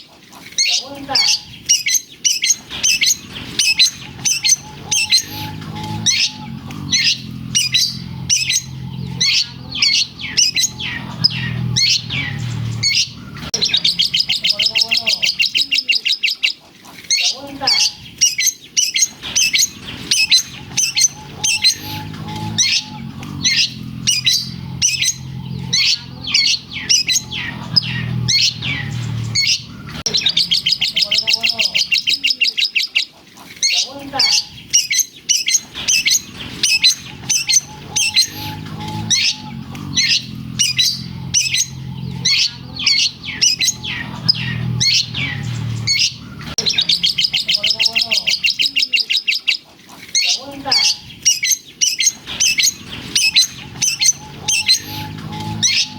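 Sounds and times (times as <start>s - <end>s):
bird singing sharp chirps: 0.6s - 16.4s, 17.1s - 33.0s, 33.6s - 49.5s, 50.2s - 55.9s
rapid buzzing bird trill: 0.6s - 16.4s, 17.1s - 49.6s, 50.2s - 55.9s
low hum: 2.6s - 14.6s, 19.1s - 31.2s, 35.6s - 47.5s, 52.1s - 55.9s.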